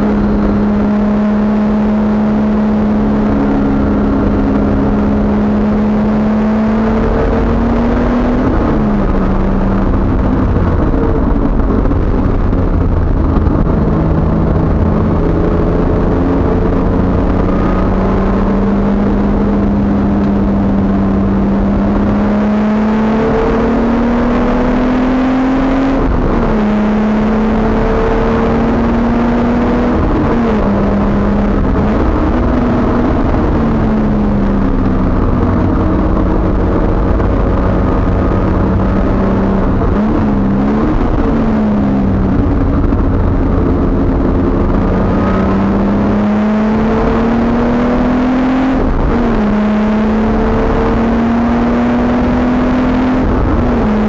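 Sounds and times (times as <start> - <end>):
race car engine under load: 0.0 - 54.0
road and wind noise: 0.0 - 54.0.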